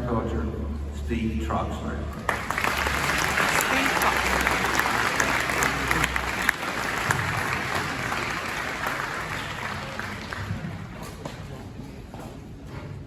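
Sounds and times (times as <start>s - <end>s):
crowd applauding: 2.2s - 11.1s.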